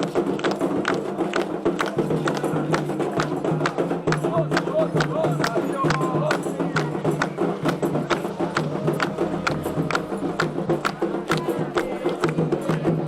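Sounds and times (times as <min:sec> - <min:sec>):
sharp percussion strikes: 0:00.0 - 0:13.0
sustained sung tones: 0:06.8 - 0:12.4.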